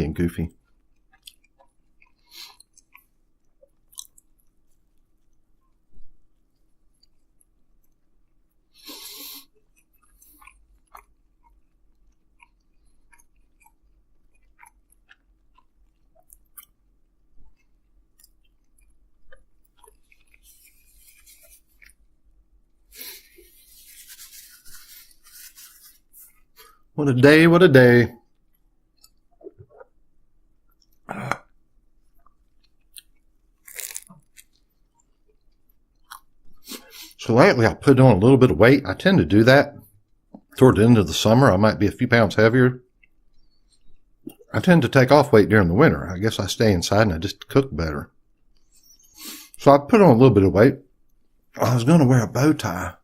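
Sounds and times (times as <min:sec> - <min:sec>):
chewing with mouth clicks: 0:00.6 - 0:05.8, 0:06.9 - 0:22.1, 0:28.3 - 0:30.0, 0:32.1 - 0:37.1, 0:42.9 - 0:44.5.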